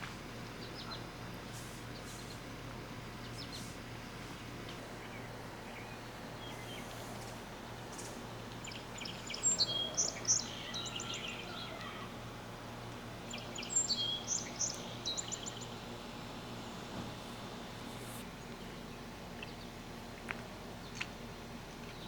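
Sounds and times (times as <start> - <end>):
low steady hum: 0.0 - 22.0
songbird chirping and trilling: 0.6 - 1.1, 4.3 - 7.0, 7.8 - 12.1, 13.2 - 16.8.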